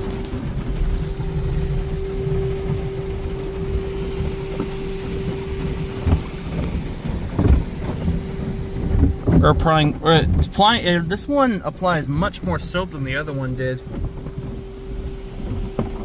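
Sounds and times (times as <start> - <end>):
car wash pump whine: 0.0 - 16.0
spray rumbling on car body: 0.0 - 16.0
dull thumps: 0.2 - 13.2.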